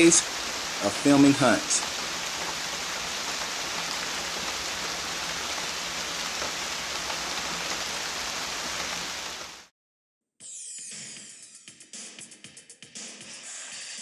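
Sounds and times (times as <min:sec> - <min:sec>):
heavy rain falling: 0:00.0 - 0:09.7.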